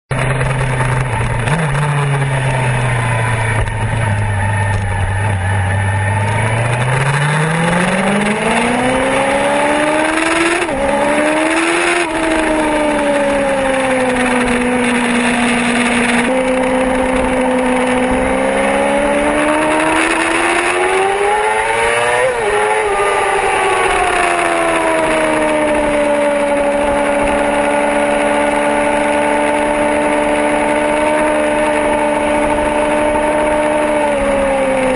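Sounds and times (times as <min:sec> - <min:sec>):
sport bike engine accelerating: 0:00.1 - 0:34.9.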